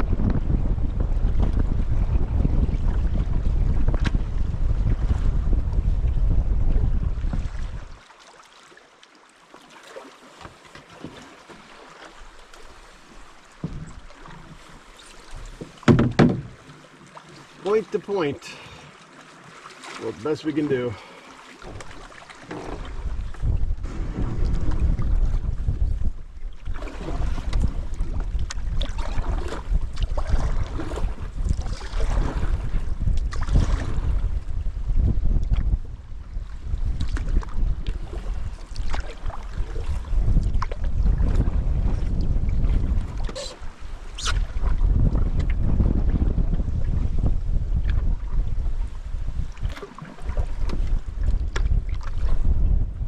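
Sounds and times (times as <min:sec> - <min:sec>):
wind buffeting microphone: 0:00.0 - 0:08.0, 0:22.6 - 0:53.0
water splashing around canoe: 0:00.0 - 0:53.0
sharp knock: 0:15.9 - 0:16.5.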